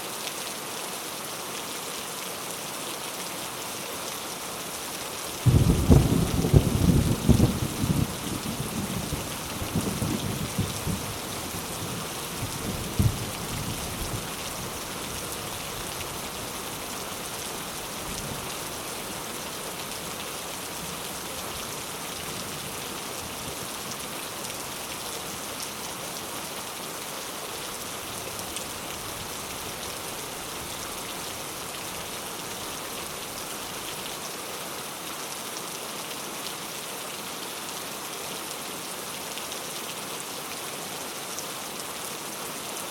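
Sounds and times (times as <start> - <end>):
heavy rain falling: 0.1 - 42.9
low rumble of thunder: 5.5 - 14.4.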